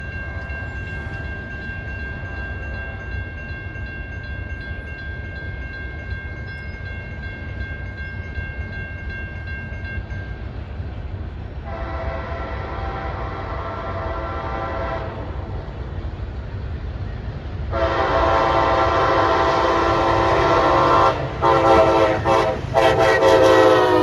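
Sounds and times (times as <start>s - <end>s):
passenger train rumbling: 0.0s - 24.0s
train horn blast: 11.6s - 15.5s, 17.7s - 24.0s.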